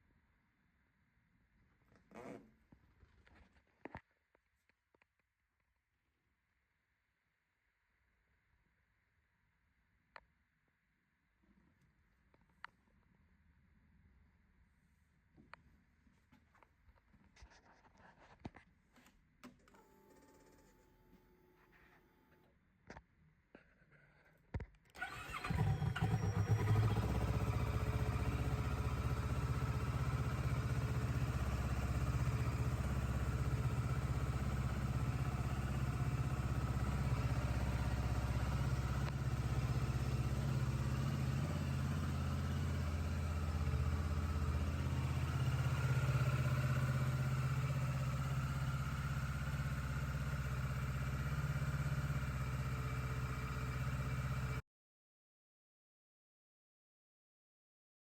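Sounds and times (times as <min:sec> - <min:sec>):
motorcycle engine idling: 0:25.0 - 0:54.6.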